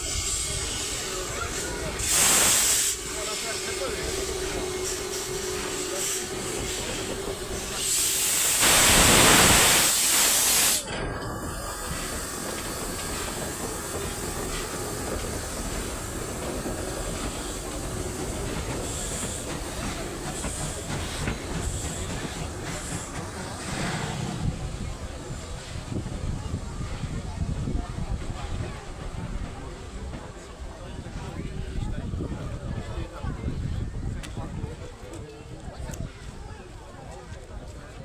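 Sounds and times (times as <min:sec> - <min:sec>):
train air hissing: 0:00.0 - 0:30.1
train running noise: 0:00.0 - 0:38.0.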